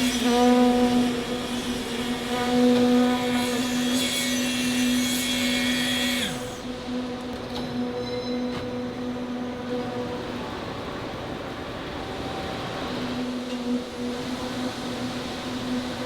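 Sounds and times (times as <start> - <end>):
machine winding down: 0.0 - 6.7
factory machinery motor hum: 0.0 - 16.0.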